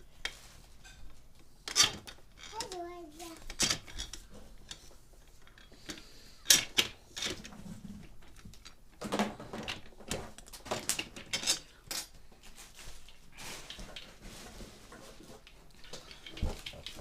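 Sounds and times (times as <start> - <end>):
hard parts clicking and clinking: 0.8 - 12.2, 15.4 - 17.0.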